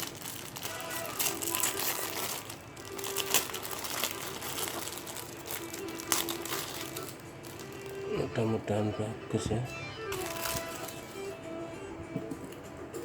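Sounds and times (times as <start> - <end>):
packaging crinkling and rustling: 0.0 - 8.6, 10.1 - 11.4
faint background music: 0.0 - 13.0.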